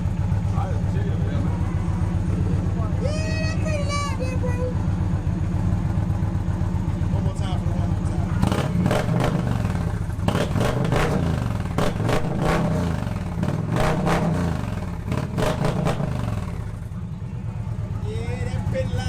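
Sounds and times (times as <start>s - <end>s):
motorcycle engine revving: 3.9s - 19.0s.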